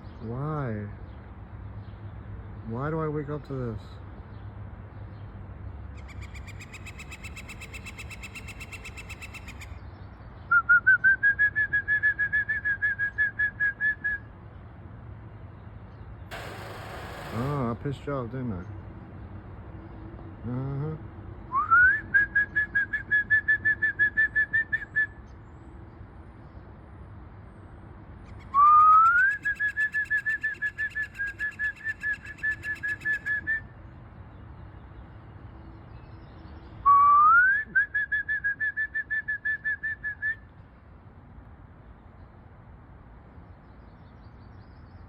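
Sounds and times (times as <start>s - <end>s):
woodpecker calling: 6.0s - 9.8s, 16.3s - 18.0s, 28.3s - 33.5s.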